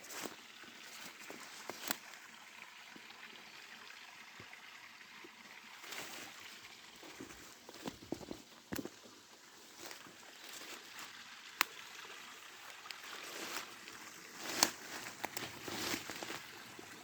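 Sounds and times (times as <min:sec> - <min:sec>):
stream trickling: 0:00.0 - 0:17.0
sharp clicks or splashes: 0:01.6 - 0:02.2, 0:11.5 - 0:12.0, 0:12.6 - 0:16.5.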